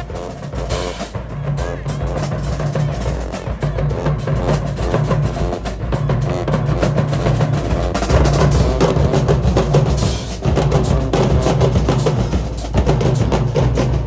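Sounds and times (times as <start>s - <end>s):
marching band playing: 0.0s - 14.0s
snare and bass drums beat: 0.0s - 14.0s.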